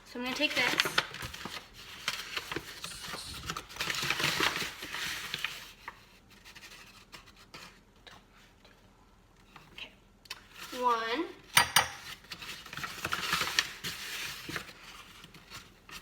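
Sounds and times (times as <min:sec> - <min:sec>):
spoon scraping and rustling flour: 0:00.4 - 0:08.8, 0:12.0 - 0:16.0.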